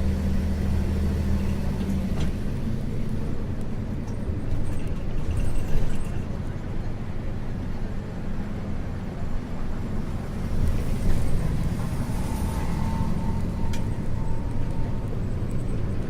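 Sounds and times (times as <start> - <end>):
bus engine drone: 0.0 - 16.0
road noise: 0.0 - 16.0
faint whine: 10.7 - 16.0.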